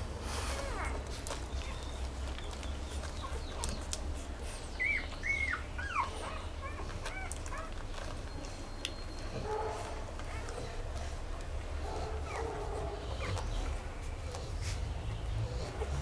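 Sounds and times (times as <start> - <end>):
dog whining: 0.4 - 2.0, 4.6 - 11.1, 11.9 - 13.7.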